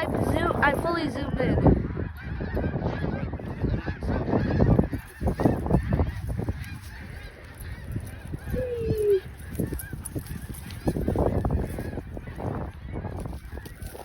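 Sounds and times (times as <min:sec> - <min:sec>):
geese honking: 0:00.0 - 0:14.0.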